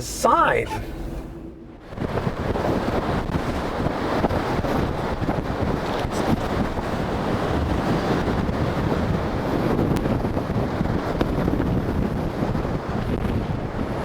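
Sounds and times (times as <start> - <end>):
gusty wind buffeting microphone: 0.0 - 14.0.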